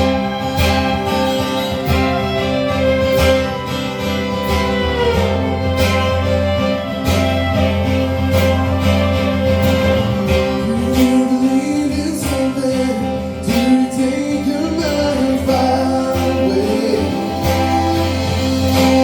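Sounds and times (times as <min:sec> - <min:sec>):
live band playing: 0:00.0 - 0:19.0
person singing: 0:08.4 - 0:19.0.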